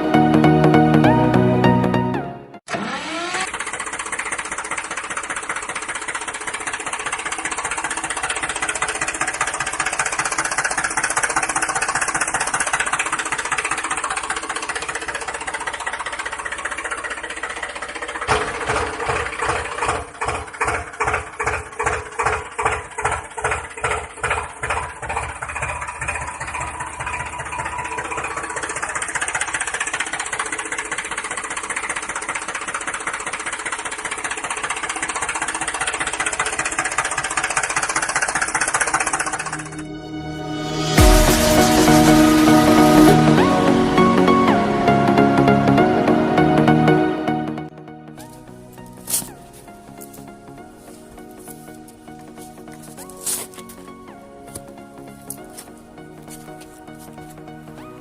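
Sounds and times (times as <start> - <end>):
small electric motor rattling: 2.7 - 39.8
rhythmic mechanical knocking: 3.4 - 39.9, 40.8 - 44.5.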